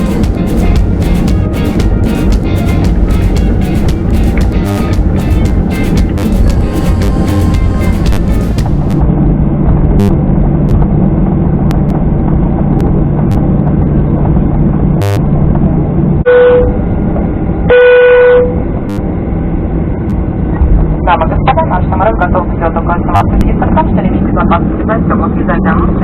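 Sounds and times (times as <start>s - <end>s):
airliner cabin hum: 0.0s - 26.0s
flat electronic beeps: 16.3s - 16.8s.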